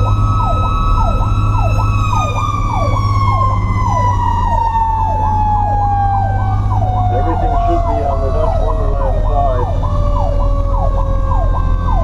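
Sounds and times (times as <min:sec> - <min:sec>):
electronic siren wail: 0:00.0 - 0:12.0
mechanical siren winding down: 0:00.0 - 0:12.0
truck engine droning: 0:00.0 - 0:12.0.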